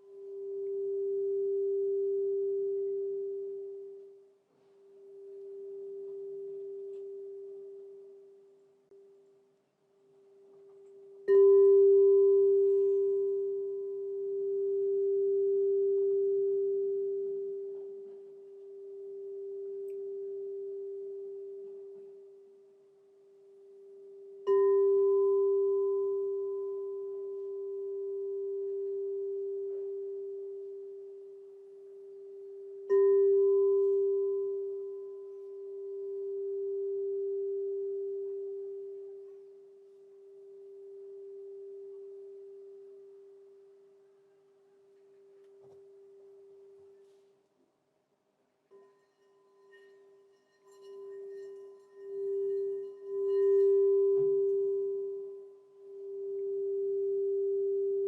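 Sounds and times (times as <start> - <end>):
singing bowl ringing: 0.0 - 4.3, 5.0 - 8.6, 10.6 - 44.0, 48.7 - 58.0.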